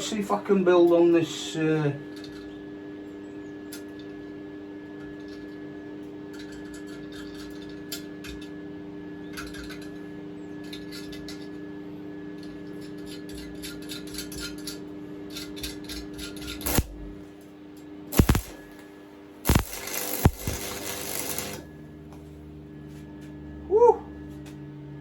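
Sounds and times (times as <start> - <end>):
welder electrical hum: 14.6 - 25.0
welding arc crackling: 16.6 - 17.3, 18.1 - 21.7
sharp loud crack: 18.2 - 18.7.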